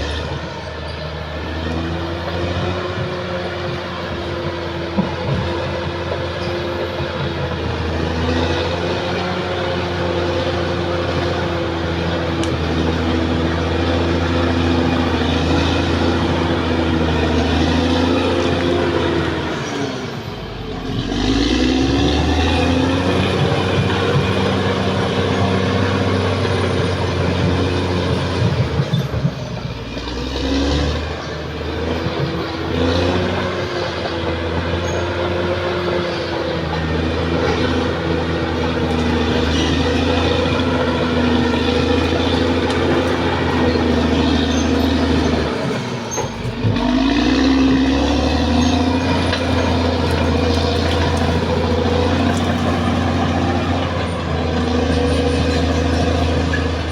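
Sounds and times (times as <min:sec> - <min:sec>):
bulldozer diesel engine running: 0:00.0 - 0:56.9
metal clanking: 0:38.6 - 0:56.9.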